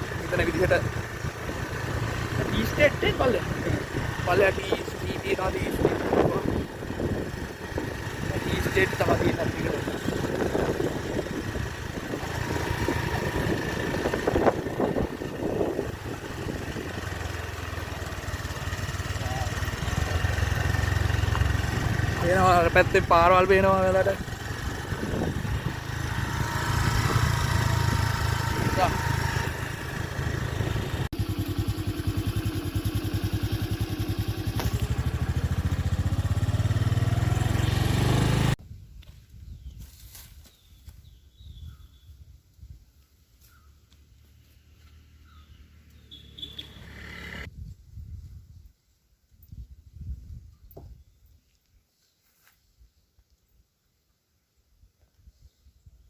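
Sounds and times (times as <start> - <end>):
vehicle engine driving: 0.0 - 38.6, 43.9 - 47.5
outdoor ambience: 24.2 - 56.0.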